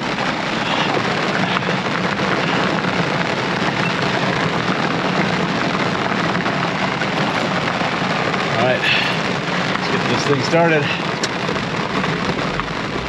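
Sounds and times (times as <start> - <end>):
heavy rain on a car roof: 0.0 - 13.0
steady low hum: 12.3 - 13.0.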